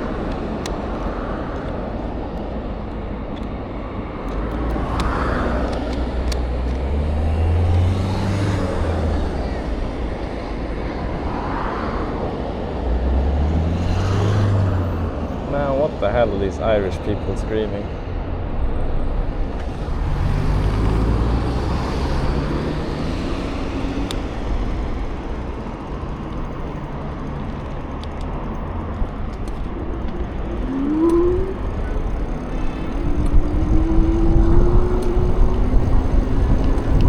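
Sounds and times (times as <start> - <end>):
traffic rumble: 0.0 - 37.0
rising engine tone: 4.5 - 18.2, 18.8 - 37.0.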